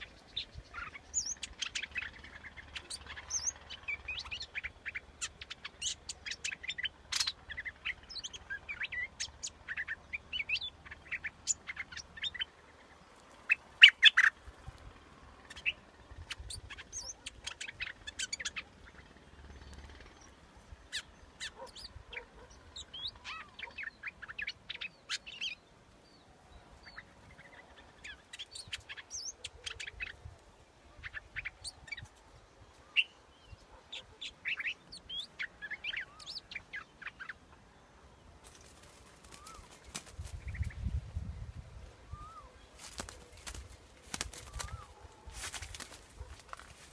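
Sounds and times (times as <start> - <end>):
bulbul chirping song: 0.0 - 14.4, 15.4 - 25.6, 38.4 - 40.9, 42.1 - 46.9.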